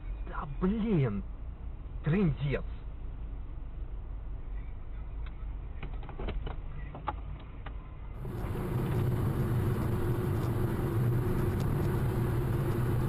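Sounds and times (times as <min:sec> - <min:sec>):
car engine humming: 0:08.2 - 0:13.0
loud engine drone: 0:08.2 - 0:13.0.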